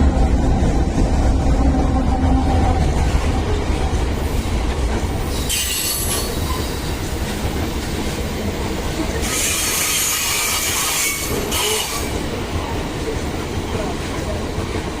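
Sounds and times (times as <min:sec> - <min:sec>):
train wheels rumbling on rails: 0:00.0 - 0:15.0
high wheel squeal and hiss: 0:05.3 - 0:06.9, 0:09.2 - 0:12.2.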